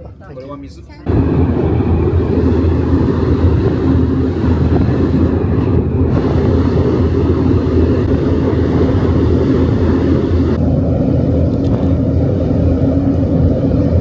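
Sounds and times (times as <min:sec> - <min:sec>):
ferry engine rumble: 0:00.0 - 0:14.0.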